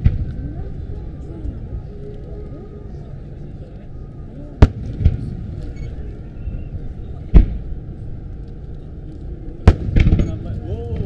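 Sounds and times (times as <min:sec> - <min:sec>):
steady low rumble: 0:00.0 - 0:11.0
soft boom: 0:04.6 - 0:05.6, 0:07.2 - 0:07.7, 0:09.6 - 0:11.0.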